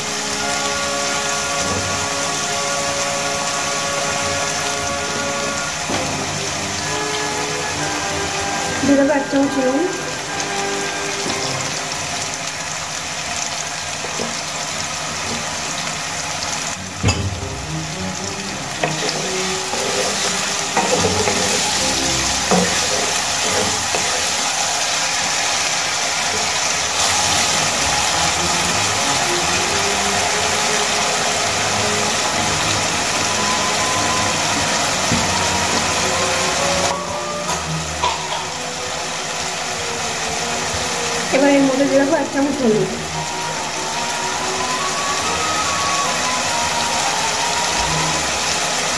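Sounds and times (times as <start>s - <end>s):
potatoes sizzling in oil: 0.0s - 48.9s
wooden spatula stirring: 18.7s - 24.5s.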